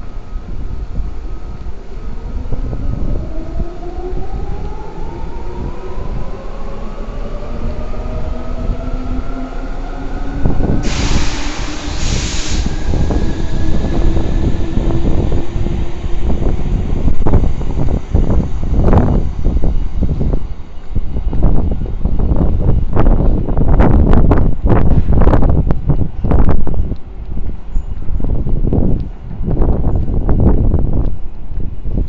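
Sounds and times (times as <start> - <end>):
loud air hiss: 10.8 - 14.8.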